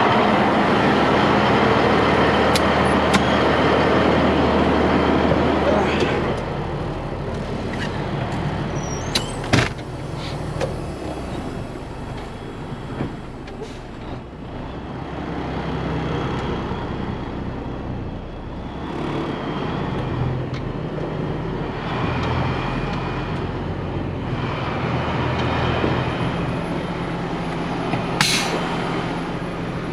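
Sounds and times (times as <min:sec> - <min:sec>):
diesel engine running: 0:00.0 - 0:29.9
sharp click: 0:28.2 - 0:28.6.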